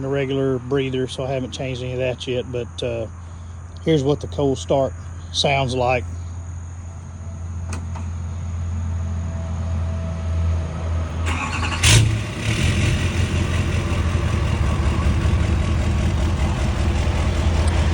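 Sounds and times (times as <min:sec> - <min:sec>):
low hum: 0:06.0 - 0:17.9
diesel engine starting and idling: 0:11.0 - 0:17.9.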